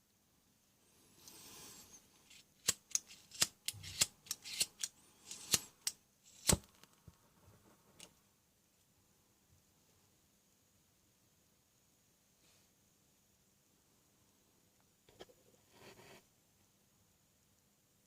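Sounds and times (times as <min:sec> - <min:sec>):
soldering iron clicks and snaps: 0:02.3 - 0:06.8.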